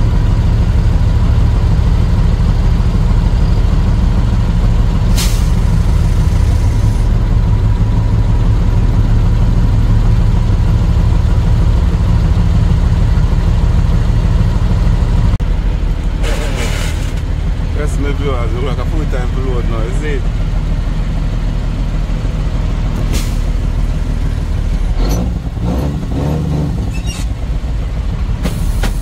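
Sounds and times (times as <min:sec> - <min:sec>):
diesel truck engine running: 0:00.0 - 0:29.0
air brake hiss: 0:05.1 - 0:07.1, 0:23.1 - 0:23.5.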